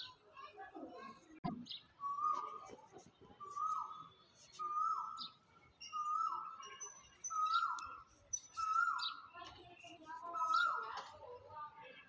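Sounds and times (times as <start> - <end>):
high chirps of other birds: 3.4 - 11.0.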